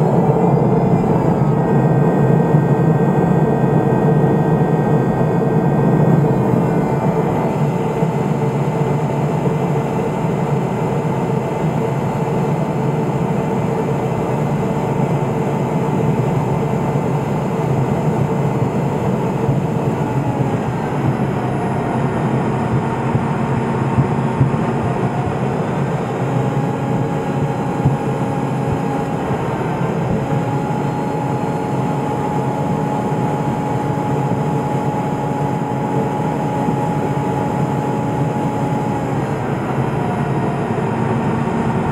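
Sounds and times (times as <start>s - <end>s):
turboprop engine and propeller: 0.0s - 41.9s.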